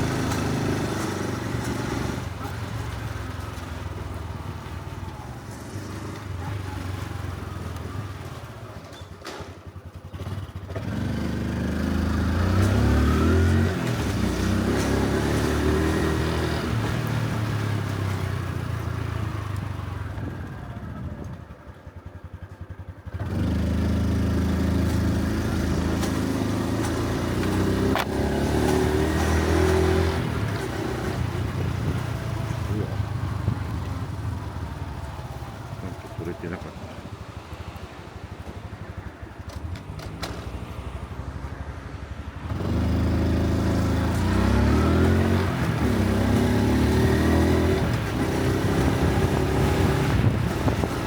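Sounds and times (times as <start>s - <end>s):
motorcycle engine: 0.0s - 51.0s.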